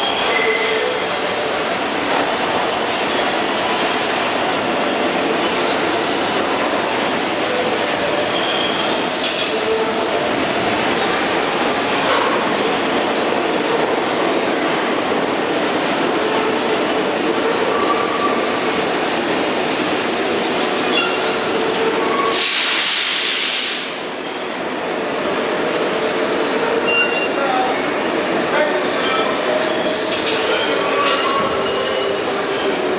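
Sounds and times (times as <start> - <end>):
subway train rumble and clatter: 0.0 - 32.9.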